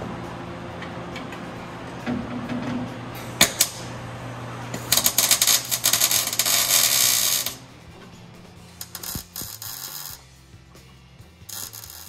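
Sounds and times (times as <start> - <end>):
welder crackling: 3.2 - 4.1, 4.7 - 7.7, 8.7 - 10.3, 11.5 - 12.0.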